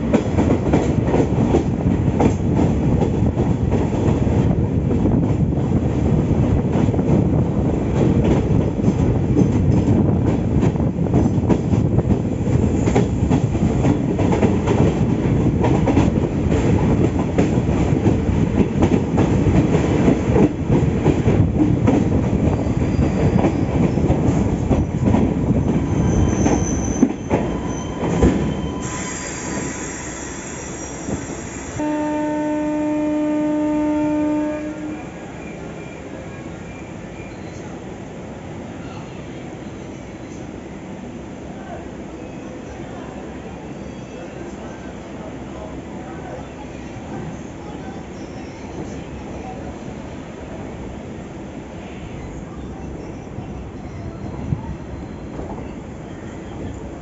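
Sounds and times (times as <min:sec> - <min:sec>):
train rumbling on track: 0:00.0 - 0:57.0
high wheel squeal: 0:22.6 - 0:24.1, 0:25.6 - 0:31.8, 0:36.6 - 0:37.8.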